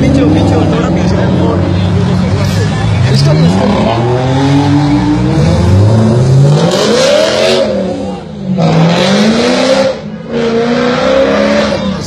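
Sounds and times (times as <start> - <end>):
sports car engine revving: 3.0 - 12.0.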